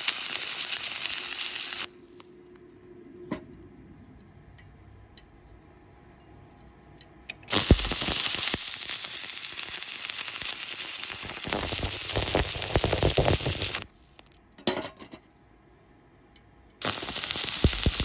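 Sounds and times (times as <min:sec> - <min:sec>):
welding arc crackling hiss: 0:00.0 - 0:02.2, 0:07.4 - 0:14.3, 0:16.8 - 0:18.0.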